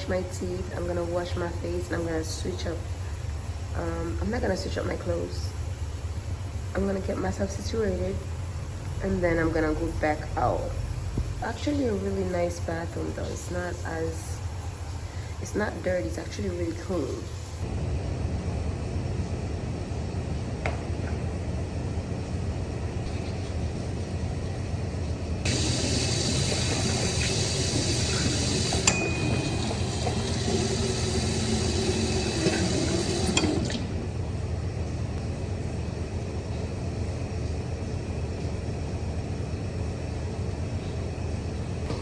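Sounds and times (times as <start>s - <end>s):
low hum: 0.0s - 42.0s
tap water running into basin: 25.5s - 33.9s.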